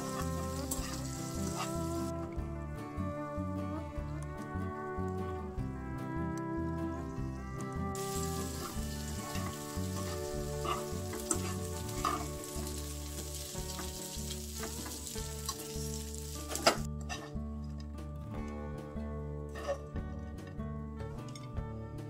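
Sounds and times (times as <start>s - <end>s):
food sizzling in frying pan: 0.0s - 2.1s, 8.0s - 16.9s
utensils clicking against pan: 8.1s - 12.8s.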